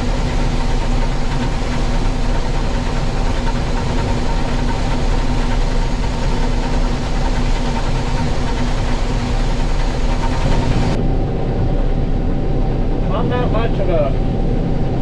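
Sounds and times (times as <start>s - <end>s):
combine threshing noise: 0.0s - 11.0s
combine engine drone: 0.0s - 15.0s.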